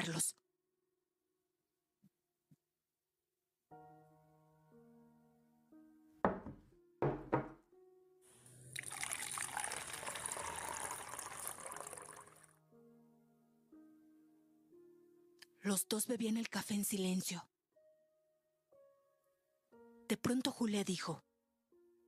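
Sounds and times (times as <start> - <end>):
soft piano music: 3.7 - 22.0
knocks: 6.3 - 7.6
coffee poured into a cup: 8.6 - 12.6.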